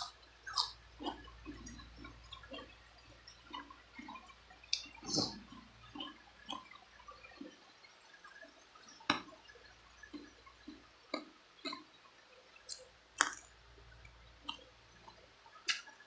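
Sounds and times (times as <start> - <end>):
wet chewing and sucking: 0.0 - 6.7, 12.7 - 13.6, 14.4 - 16.0.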